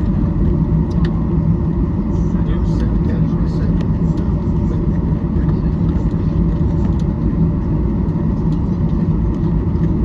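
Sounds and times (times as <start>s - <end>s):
airplane cabin engine rumble: 0.0s - 10.0s.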